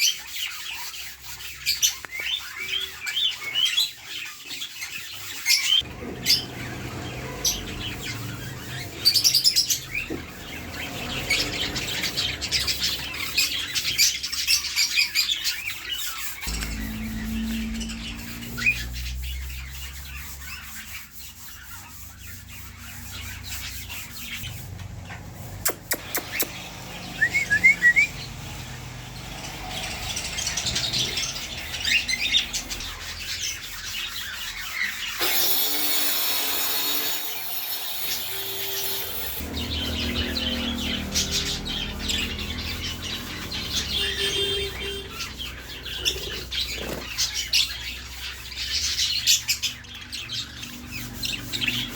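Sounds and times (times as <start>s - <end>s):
parakeets chirping and chattering: 0.0s - 35.5s, 36.4s - 51.9s
sharp clicks: 25.7s - 26.6s.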